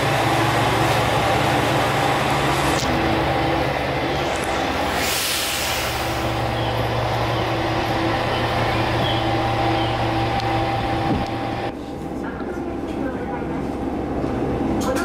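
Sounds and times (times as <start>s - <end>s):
diesel railcar engine hum: 0.0s - 15.0s
hissing air burst: 4.2s - 6.4s.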